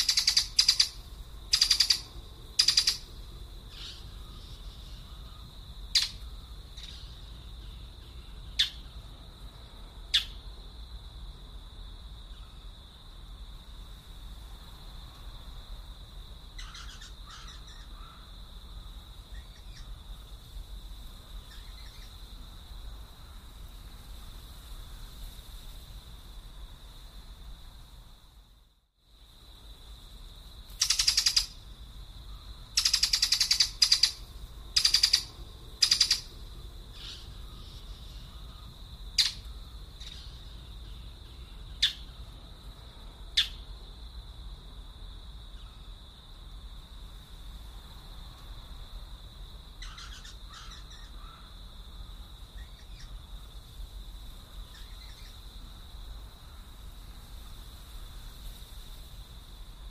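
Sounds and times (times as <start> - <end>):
harsh bird calls: 0.0 - 3.1, 16.6 - 18.3, 30.8 - 31.5, 32.8 - 34.2, 34.8 - 36.3, 49.8 - 51.5.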